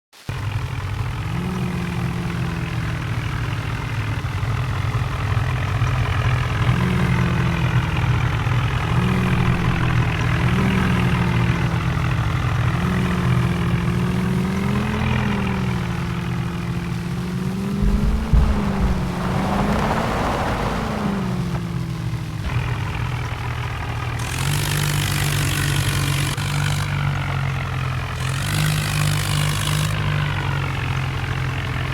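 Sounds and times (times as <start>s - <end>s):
tractor engine running: 0.3s - 31.9s
short loud low rumble: 17.8s - 21.6s.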